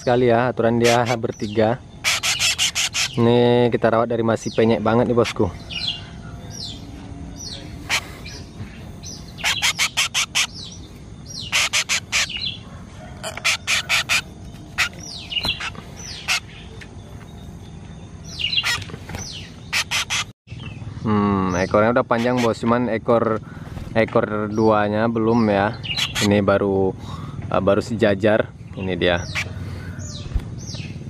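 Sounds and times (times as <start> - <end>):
rapid harsh bird chips: 0.7 - 3.4, 7.5 - 12.6, 13.2 - 16.7, 18.4 - 20.4, 21.6 - 22.8, 25.8 - 26.4.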